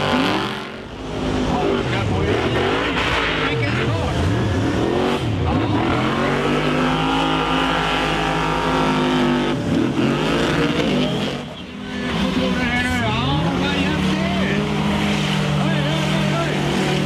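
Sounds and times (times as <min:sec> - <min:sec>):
monster truck engine revving: 0:00.0 - 0:17.0.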